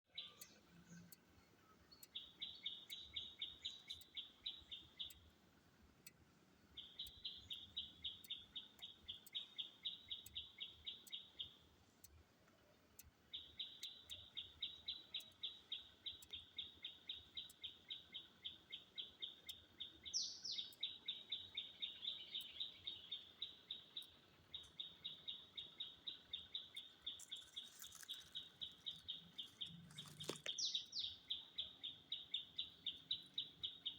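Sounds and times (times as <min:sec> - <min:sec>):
bird chirping rapidly: 0:02.0 - 0:05.2, 0:13.3 - 0:33.9.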